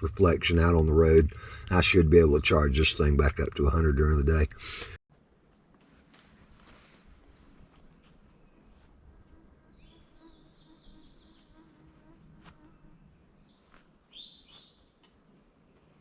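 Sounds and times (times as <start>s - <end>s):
songbirds singing: 8.2s - 11.7s, 12.9s - 15.0s.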